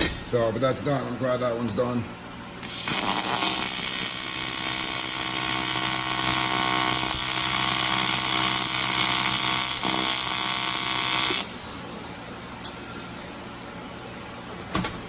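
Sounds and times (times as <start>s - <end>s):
welding arc buzzing: 2.6s - 12.0s.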